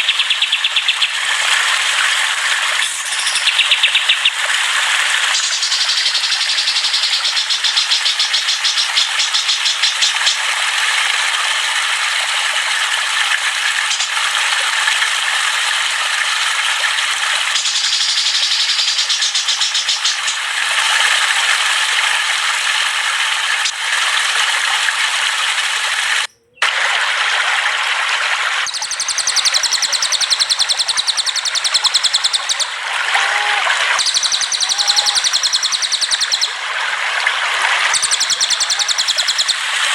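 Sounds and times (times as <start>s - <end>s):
songbirds chattering: 0.0s - 1.3s, 2.8s - 4.4s, 5.3s - 10.4s, 17.5s - 20.5s, 26.2s - 26.7s, 28.7s - 32.7s, 33.9s - 36.6s, 37.9s - 39.9s.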